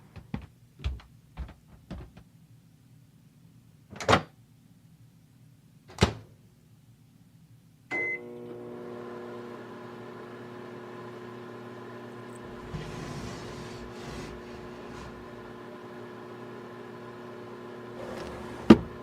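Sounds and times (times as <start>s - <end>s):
microwave oven humming: 7.9s - 19.0s.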